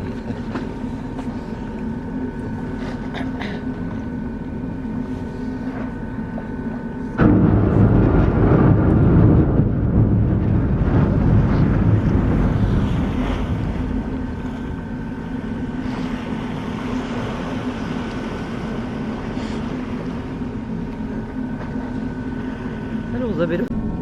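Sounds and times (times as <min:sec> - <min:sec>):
ship engines humming: 0:00.0 - 0:24.0
loud rushing noise: 0:07.2 - 0:15.0.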